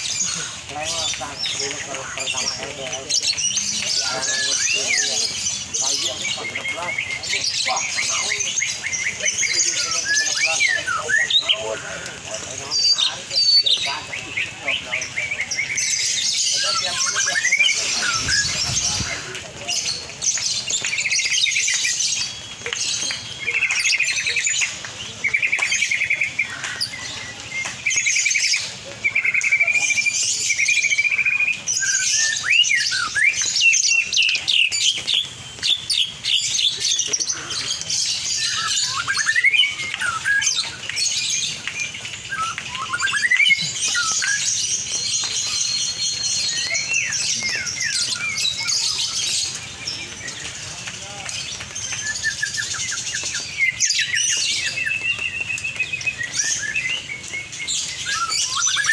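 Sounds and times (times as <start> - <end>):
bird chattering trills and chirps: 0.0 - 58.9.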